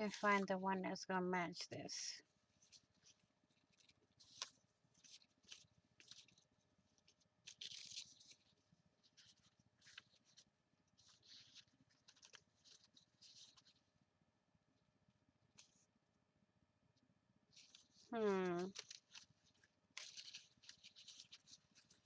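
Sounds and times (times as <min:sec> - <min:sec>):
hands rustling craft supplies: 0:00.0 - 0:00.6, 0:01.9 - 0:13.9, 0:17.5 - 0:22.0.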